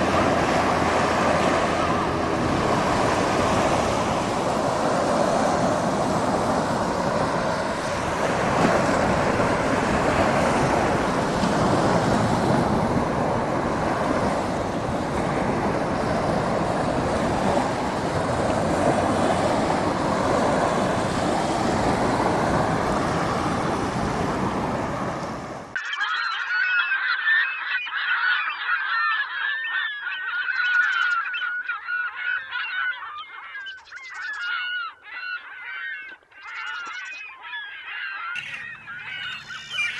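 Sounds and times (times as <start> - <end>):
ocean surf: 0.0 - 25.8, 38.4 - 39.9
gulls crying: 0.0 - 39.9
wind: 0.0 - 39.9.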